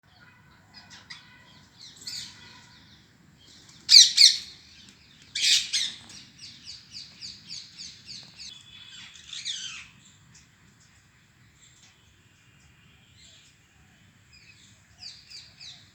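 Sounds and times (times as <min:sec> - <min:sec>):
parrot chirping: 0:03.9 - 0:04.5.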